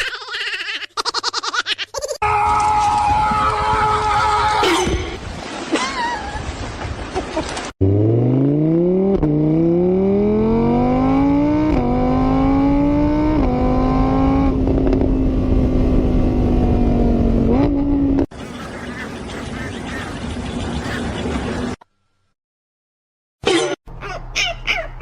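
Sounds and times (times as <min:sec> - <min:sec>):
car engine accelerating hard: 0:07.8 - 0:18.3.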